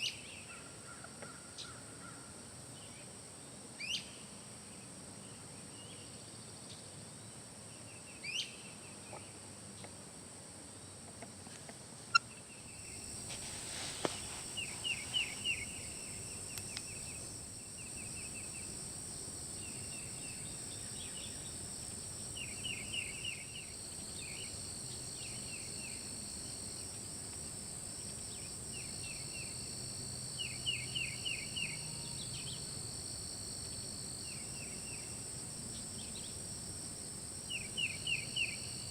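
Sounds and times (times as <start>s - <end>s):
songbird calling: 12.1s - 26.1s, 37.5s - 38.7s.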